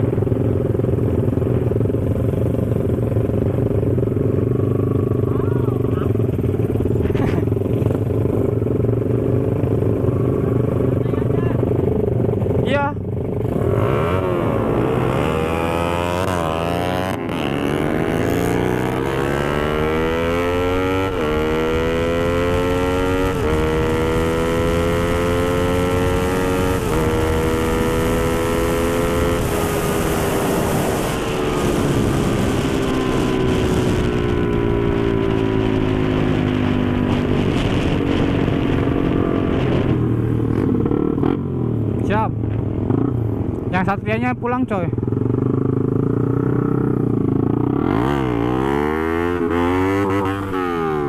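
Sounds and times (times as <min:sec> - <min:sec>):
motorcycle engine accelerating: 0:00.0 - 0:51.0
wind rushing over microphone: 0:13.4 - 0:43.8.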